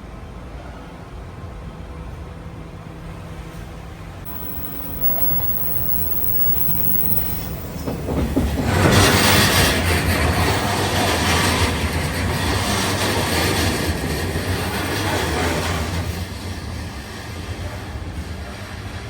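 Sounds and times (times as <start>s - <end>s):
train passing on rails: 0.4s - 19.0s
steady low rumble: 4.3s - 8.1s.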